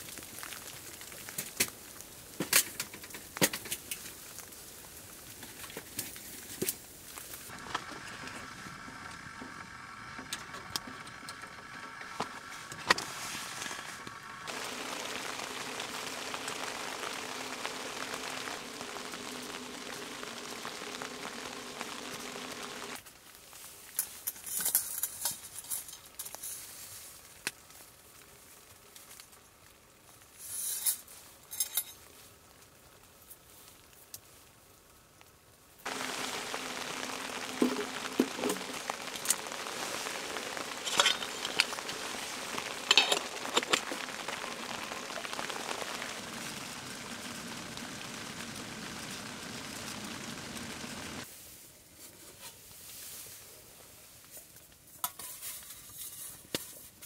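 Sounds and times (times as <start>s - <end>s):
sizzling on a stove: 0.0s - 57.0s.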